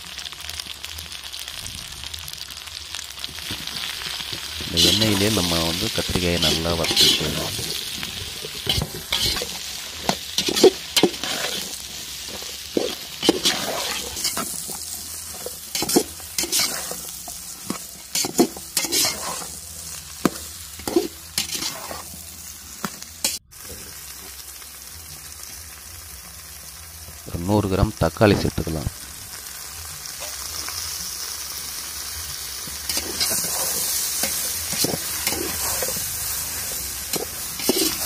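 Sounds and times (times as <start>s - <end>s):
vegetables sizzling in hot oil: 0.0s - 38.0s
metal ladle scraping a pot: 6.4s - 19.6s, 20.8s - 22.2s, 32.9s - 38.0s.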